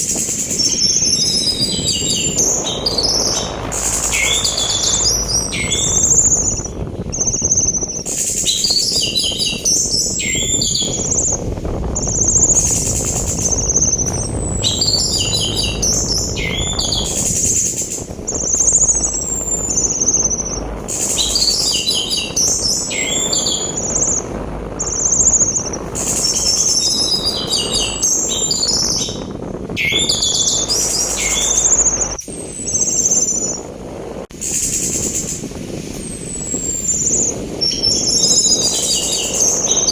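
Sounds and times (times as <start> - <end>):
thrush singing whistles and chatters: 0.0 - 33.7, 34.4 - 39.9
sea wind rushing: 0.0 - 39.9.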